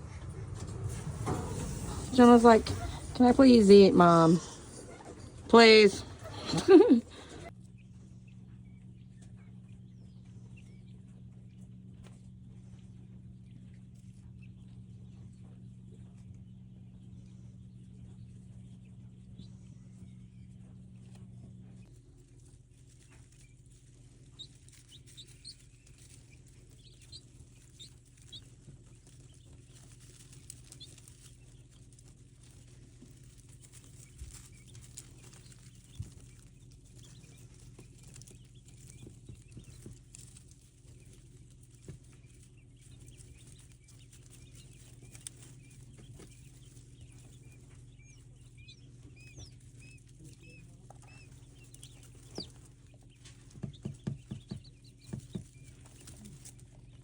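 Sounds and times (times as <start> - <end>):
steady low hum: 0.0 - 57.0
light rustles and knocks: 21.1 - 48.3, 48.9 - 57.0
faint high bird chirps: 22.9 - 57.0.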